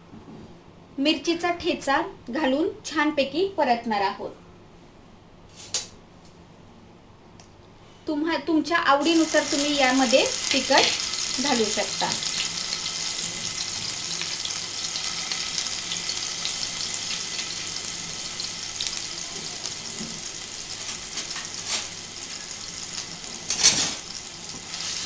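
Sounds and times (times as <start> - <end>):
paste sizzling in hot oil: 9.0 - 25.0.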